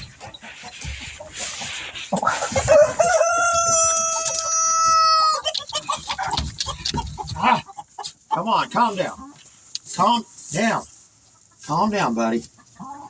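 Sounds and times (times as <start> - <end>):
chickens scuffling and rustling: 0.0 - 13.0
rooster crowing: 2.5 - 5.5.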